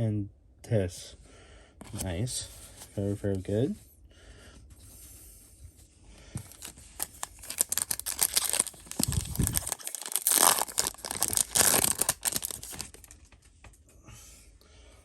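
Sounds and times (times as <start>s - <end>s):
foil wrapper tearing and crinkling: 6.4s - 13.2s.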